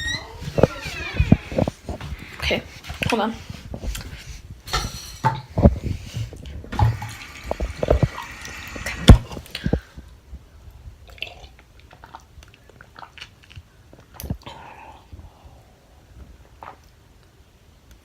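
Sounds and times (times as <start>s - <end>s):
water running into a glass: 6.7s - 9.2s.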